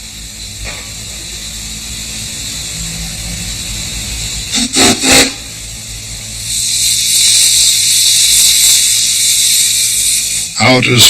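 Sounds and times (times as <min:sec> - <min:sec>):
steam hissing: 0:00.0 - 0:11.0
steam whistle blasts: 0:04.5 - 0:05.6.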